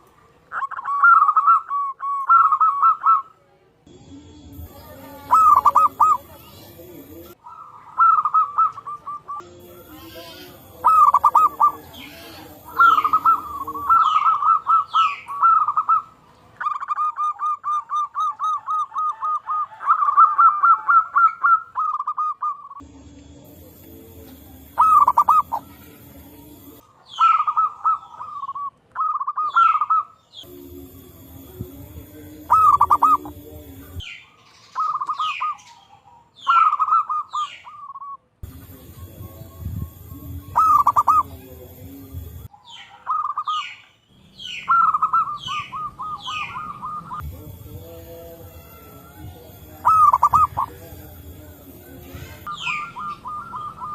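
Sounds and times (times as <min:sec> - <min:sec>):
doves cooing: 0:00.0 - 0:03.4, 0:04.5 - 0:43.8, 0:44.4 - 0:53.9
short high downward chirps: 0:22.8 - 0:26.8, 0:30.4 - 0:34.0, 0:38.4 - 0:41.4.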